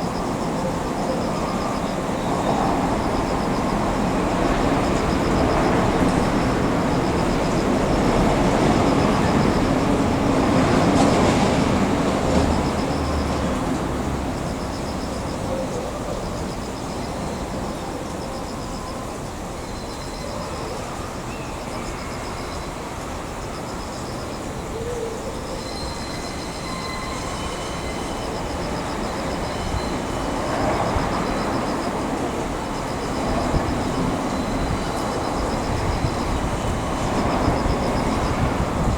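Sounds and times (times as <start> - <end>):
railway cars rumbling: 0.0 - 38.9
faint wheel squeals: 25.4 - 31.8.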